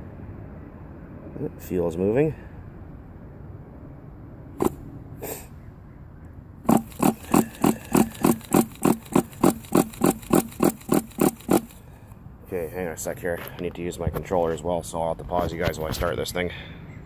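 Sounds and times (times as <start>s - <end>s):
engine priming strokes: 4.6s - 4.8s, 6.7s - 11.8s.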